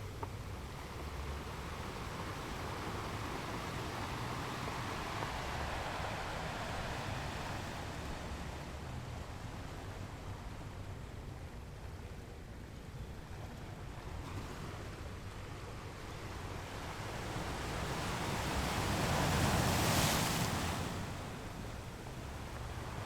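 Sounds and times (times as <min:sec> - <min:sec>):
ocean waves breaking on rocks: 0:16.6 - 0:23.0.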